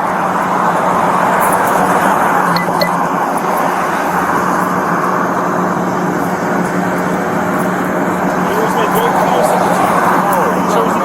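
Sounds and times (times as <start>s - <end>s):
road traffic rush: 0.0s - 11.0s
short faint beeps: 2.6s - 3.0s.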